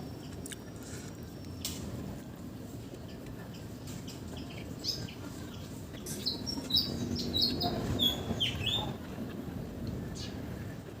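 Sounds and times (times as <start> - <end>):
small birds chirping: 3.0 - 9.5, 10.1 - 10.5.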